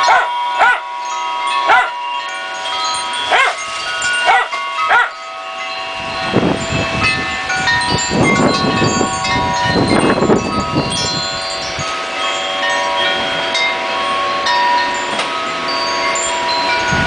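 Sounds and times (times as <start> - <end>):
wind chimes jangling: 0.0 - 17.0
wind gusts on microphone: 2.7 - 14.8, 15.6 - 17.0.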